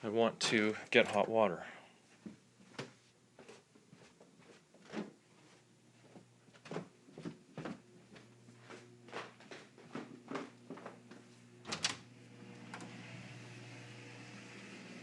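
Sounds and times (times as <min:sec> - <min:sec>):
footsteps going down stairs: 0:02.2 - 0:11.4.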